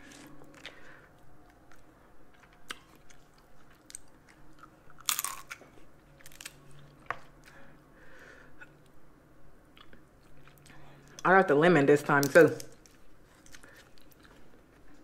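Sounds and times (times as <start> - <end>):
person chewing: 0.0 - 7.8, 9.7 - 11.2, 12.7 - 15.0
crab shell cracking: 4.9 - 5.6.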